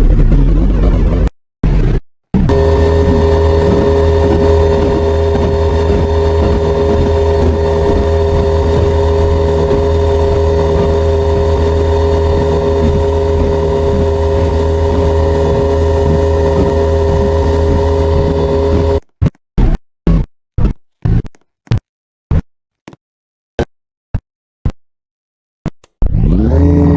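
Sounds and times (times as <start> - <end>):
ceiling fan motor humming: 2.5 - 19.0.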